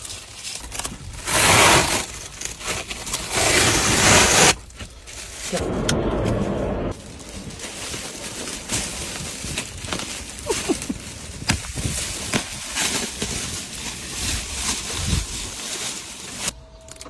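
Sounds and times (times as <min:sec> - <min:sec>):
plastic wrap crinkling: 0:00.0 - 0:05.6, 0:06.9 - 0:16.6.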